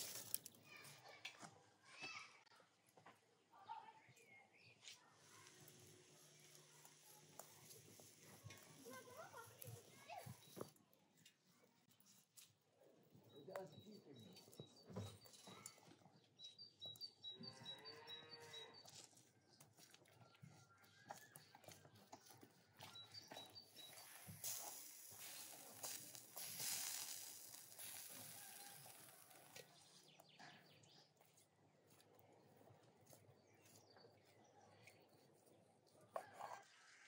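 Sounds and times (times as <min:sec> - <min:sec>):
small birds chirping: 0:02.8 - 0:36.4
broad hiss: 0:24.2 - 0:29.2.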